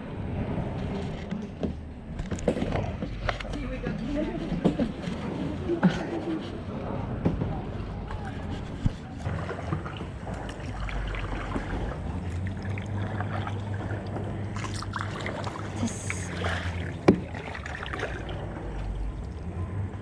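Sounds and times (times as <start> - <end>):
low rumble: 0.0 - 20.0
paddle splashing in water: 8.0 - 19.6.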